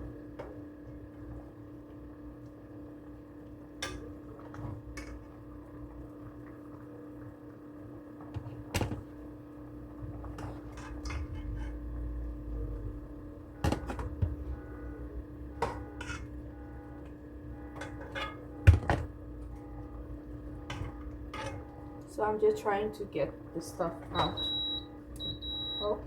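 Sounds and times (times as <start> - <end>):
steady appliance hum: 0.0 - 26.0
pots and utensils clinking: 10.3 - 11.8, 15.6 - 16.4, 17.7 - 19.1, 20.7 - 21.7.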